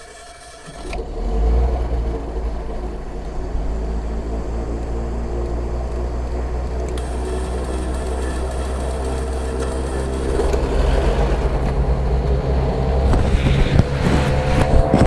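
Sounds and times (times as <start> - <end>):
aircraft piston engines running: 2.1 - 15.0.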